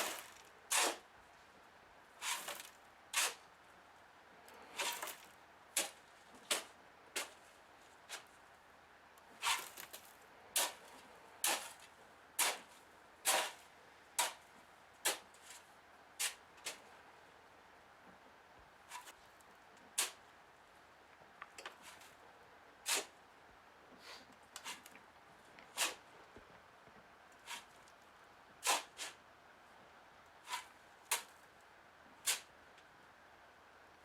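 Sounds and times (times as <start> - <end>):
shovel scraping sand: 0.0 - 1.0, 2.2 - 3.4, 4.6 - 7.4, 8.1 - 8.3, 9.4 - 13.6, 14.2 - 14.4, 15.0 - 15.6, 16.2 - 16.8, 18.9 - 19.2, 20.0 - 20.2, 22.8 - 23.1, 24.1 - 24.9, 25.7 - 26.0, 27.4 - 27.8, 28.6 - 29.2, 30.4 - 31.3, 32.2 - 32.5.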